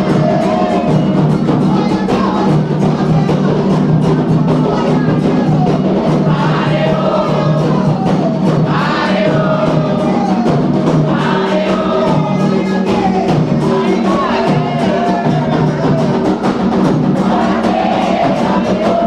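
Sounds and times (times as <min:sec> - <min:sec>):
hand drums fast rhythm: 0:00.0 - 0:19.0
group of voices chanting: 0:04.2 - 0:16.3, 0:17.1 - 0:19.0.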